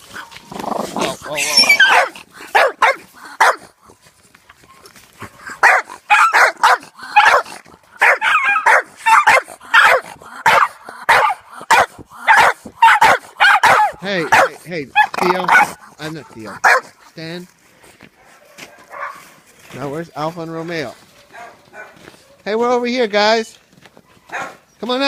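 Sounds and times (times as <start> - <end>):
dog barking: 1.8 - 3.7, 5.4 - 17.0, 18.2 - 19.3, 21.1 - 22.5, 24.3 - 24.6.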